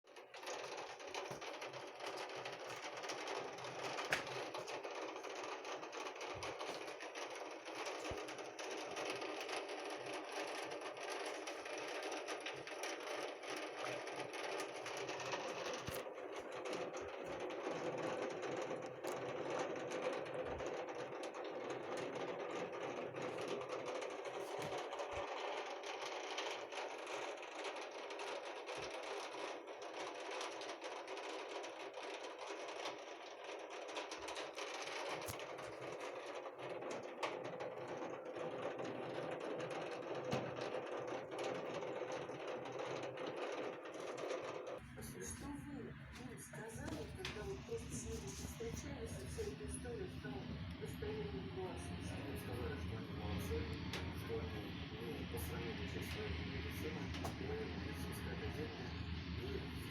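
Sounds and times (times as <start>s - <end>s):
heavy rain on hard surface: 0.1s - 44.3s.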